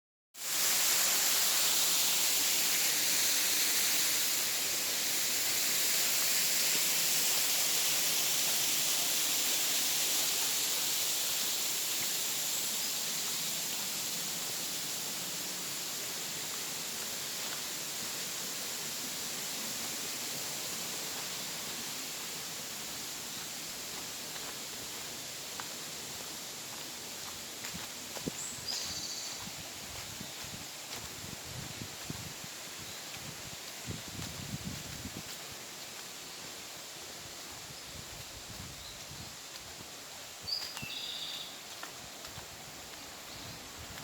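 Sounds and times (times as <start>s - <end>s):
waterfall rushing: 0.4s - 31.2s.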